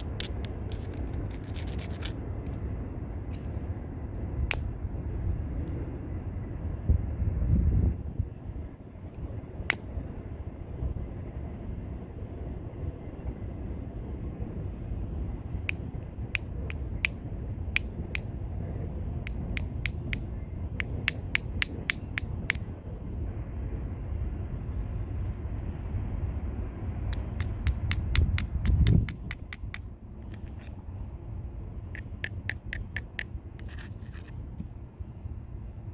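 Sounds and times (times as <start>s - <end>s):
stone strikes clicking: 27.1s - 30.7s.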